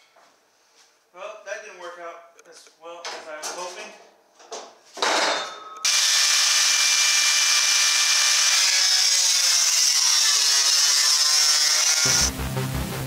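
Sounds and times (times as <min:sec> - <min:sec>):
drill hole saw screeching through steel: 0:05.8 - 0:12.2.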